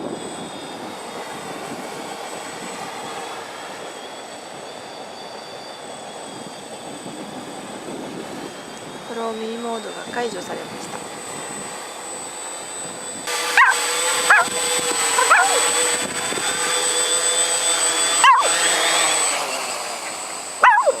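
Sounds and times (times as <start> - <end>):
drone propellers whining: 0.0 - 21.0
dog barking: 13.5 - 15.8, 18.2 - 18.6, 20.6 - 21.0.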